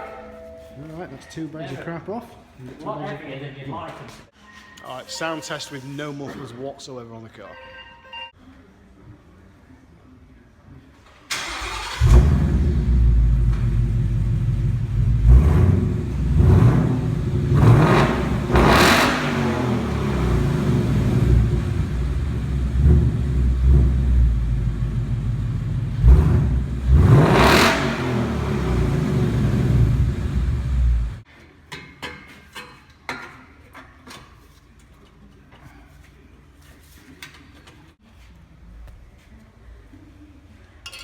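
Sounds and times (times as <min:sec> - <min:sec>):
engine cranking: 0:11.3 - 0:12.9
engine revving: 0:11.4 - 0:31.2
car engine deep rumble idling: 0:12.0 - 0:31.2.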